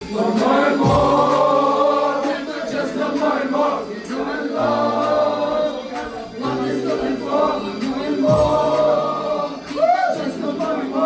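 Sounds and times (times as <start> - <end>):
choir chanting long notes: 0.0 - 11.0.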